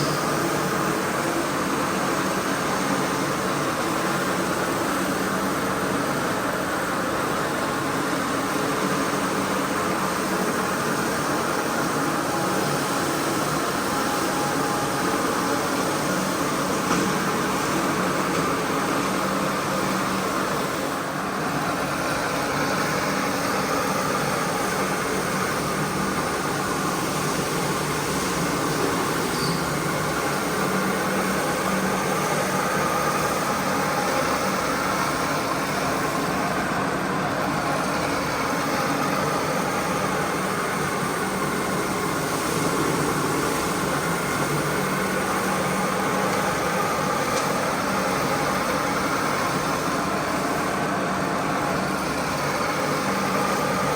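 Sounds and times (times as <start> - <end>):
carpet cleaning machine running: 0.0 - 53.9.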